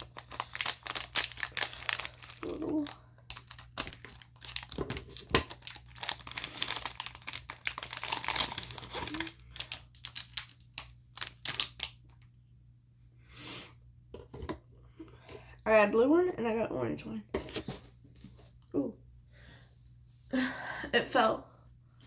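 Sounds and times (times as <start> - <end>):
plastic packaging crinkling and tearing: 0.0 - 12.2.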